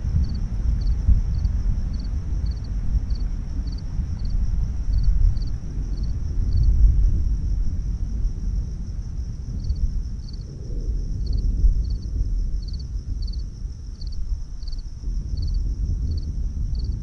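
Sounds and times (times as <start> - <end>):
insects chirping: 0.0 - 17.0
low rolling thunder: 0.0 - 17.0.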